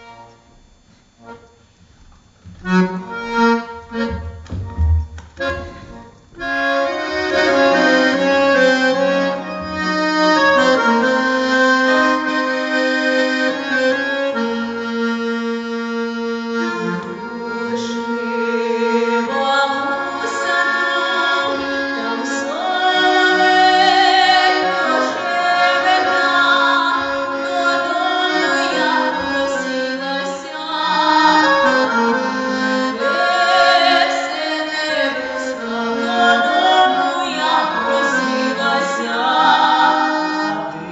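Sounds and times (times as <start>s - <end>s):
accordion melody over chords: 0.0s - 40.9s.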